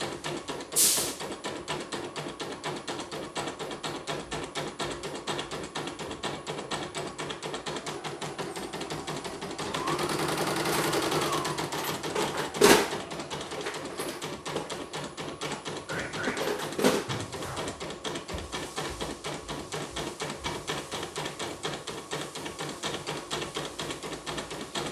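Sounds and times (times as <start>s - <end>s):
machine whine: 7.5s - 18.3s.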